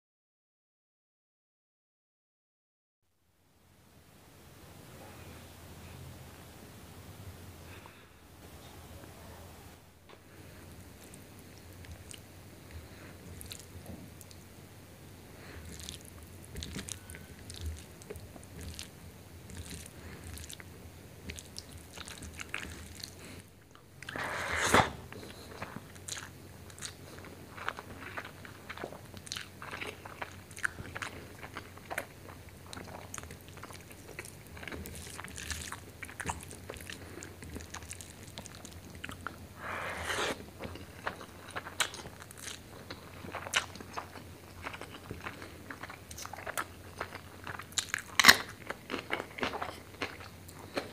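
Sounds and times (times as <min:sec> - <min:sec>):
close chewing and wet mouth sounds: 0:10.5 - 0:14.6, 0:15.3 - 0:24.2, 0:25.2 - 0:39.5, 0:40.5 - 0:50.9.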